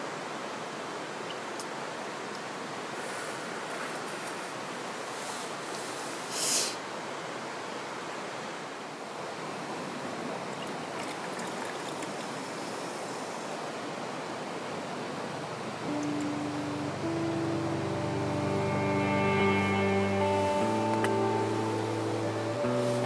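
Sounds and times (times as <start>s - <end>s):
river rushing: 0.0s - 23.0s
short hiss: 5.2s - 6.8s.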